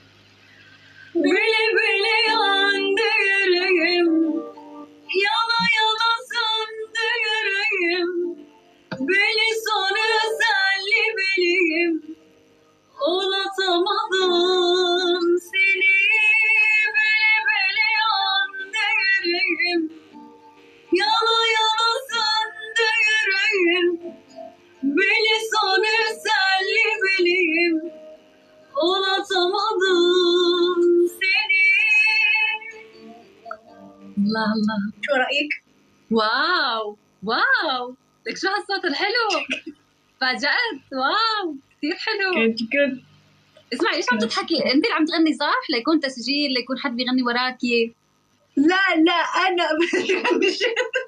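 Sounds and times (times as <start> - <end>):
woman singing ornamented melody: 1.2 - 19.9, 20.9 - 24.0, 24.8 - 33.2.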